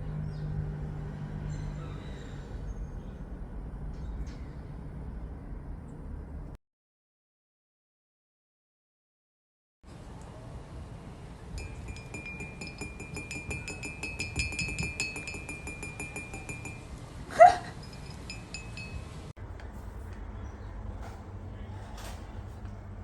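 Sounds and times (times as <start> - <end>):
high ringing tone: 11.6 - 16.9, 17.7 - 19.3
rapid metallic clinking ticks: 11.6 - 17.0, 17.8 - 19.2.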